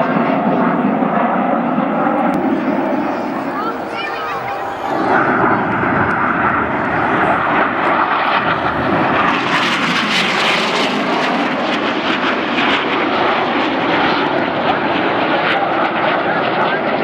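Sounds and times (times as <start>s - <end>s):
jets flying past: 2.2s - 13.2s.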